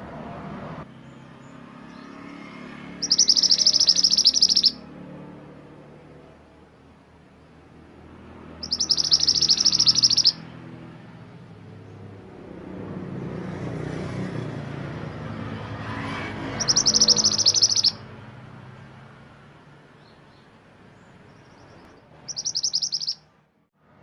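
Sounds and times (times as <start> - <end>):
songbird high trills: 3.0 - 4.8, 8.6 - 10.4, 16.5 - 18.0, 21.4 - 23.3.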